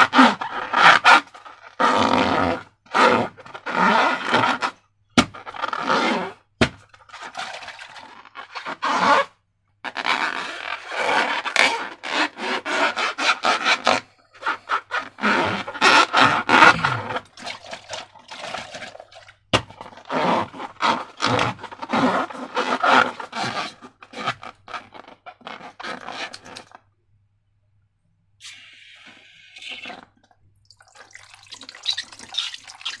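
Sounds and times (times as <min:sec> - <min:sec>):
slime scraping and rubbing: 0:00.0 - 0:19.1, 0:19.7 - 0:26.8, 0:31.6 - 0:33.0.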